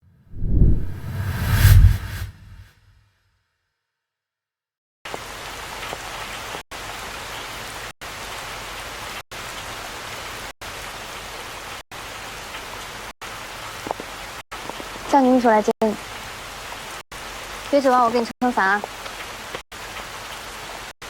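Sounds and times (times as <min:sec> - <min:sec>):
steady rain falling: 0:05.1 - 0:21.0.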